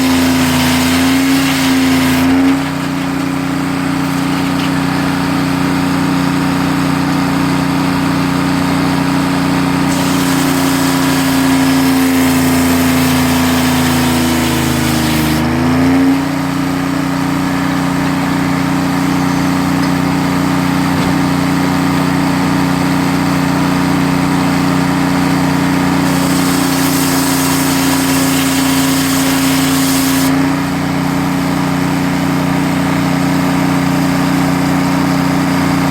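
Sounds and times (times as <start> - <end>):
saw cutting through wood: 0.0 - 3.4, 9.8 - 16.4, 25.9 - 30.6
sawmill engine running: 0.0 - 35.9.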